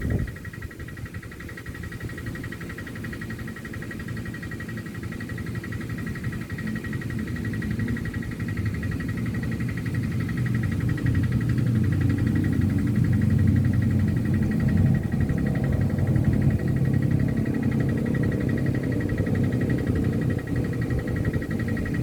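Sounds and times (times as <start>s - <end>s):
wind buffeting microphone: 0.0s - 1.3s, 10.8s - 22.0s
faint pulsing high drone: 2.5s - 22.0s.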